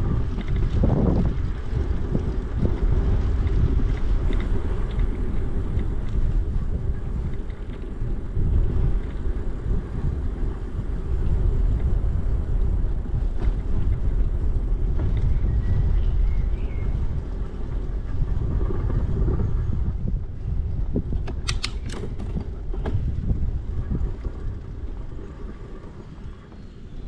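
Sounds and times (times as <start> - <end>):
bicycle tyres rolling on trail: 0.0 - 27.0
wind on microphone: 0.0 - 27.0.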